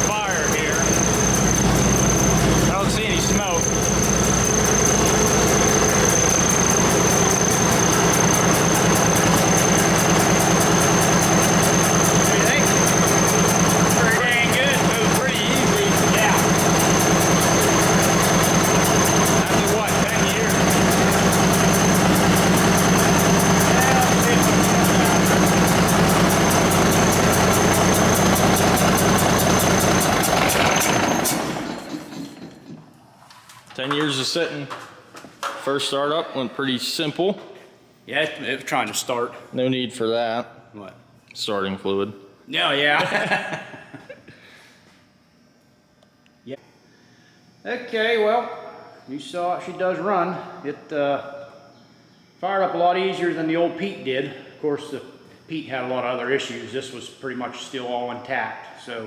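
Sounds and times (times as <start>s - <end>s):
engine idling with ticking: 0.0s - 31.9s.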